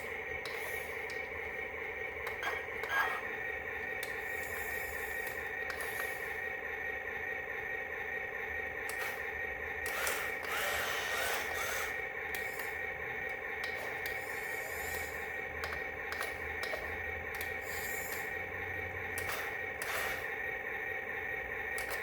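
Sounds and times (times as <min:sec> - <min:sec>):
small electric motor whirring: 0:00.0 - 0:01.4, 0:02.2 - 0:03.4, 0:04.0 - 0:06.4, 0:08.9 - 0:18.5, 0:19.1 - 0:20.5, 0:21.8 - 0:22.0.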